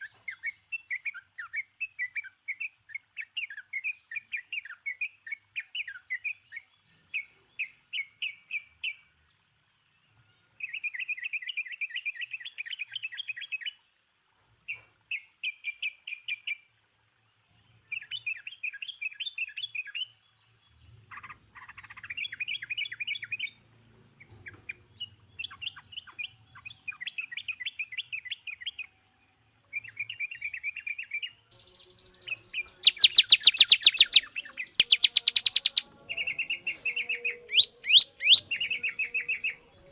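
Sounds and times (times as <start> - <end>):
songbird chirping: 0.0 - 39.9
rapid bird trill: 29.8 - 39.7.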